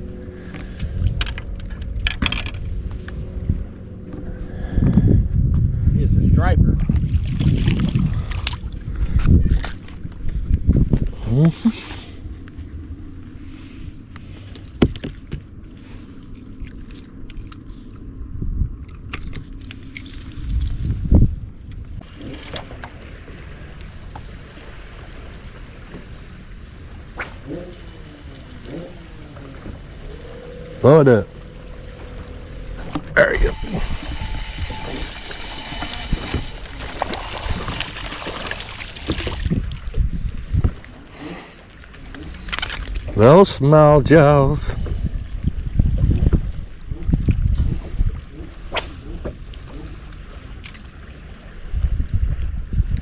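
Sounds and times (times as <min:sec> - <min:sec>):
steady low hum: 0:00.0 - 0:53.0
knocks and thumps on a boat: 0:14.7 - 0:15.5.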